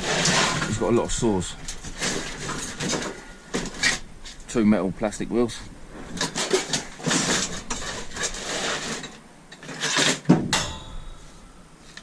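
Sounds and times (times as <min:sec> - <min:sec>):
scrap metal clattering: 0:00.0 - 0:04.5, 0:06.0 - 0:12.0
loud metal clank: 0:09.9 - 0:11.7.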